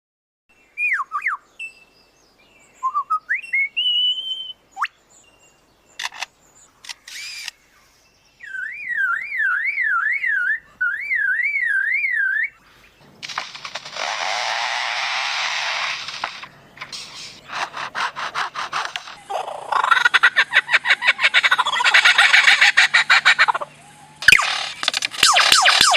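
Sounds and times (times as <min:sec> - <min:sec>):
mimicking songbird whistling: 0:00.7 - 0:01.9, 0:02.7 - 0:05.0, 0:08.4 - 0:12.6
harsh rasping scrape: 0:13.3 - 0:19.3
clicks: 0:15.8 - 0:17.2, 0:24.2 - 0:25.9.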